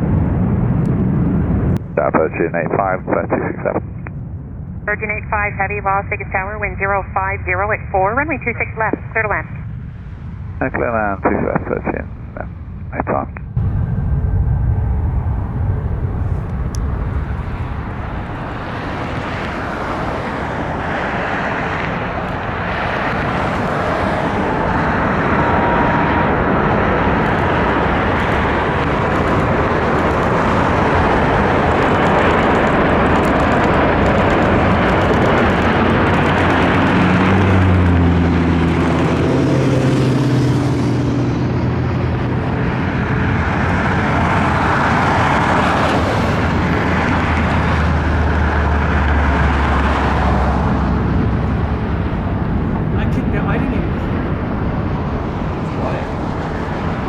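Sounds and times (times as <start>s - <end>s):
jet engine noise: 0.0s - 57.0s
engine tones sliding down: 13.6s - 57.0s.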